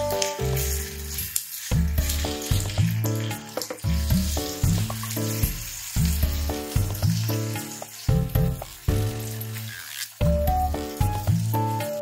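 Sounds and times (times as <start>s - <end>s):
corn kernels sizzling in pan: 0.0s - 12.0s
background music with bass line: 1.7s - 9.4s, 10.2s - 12.0s.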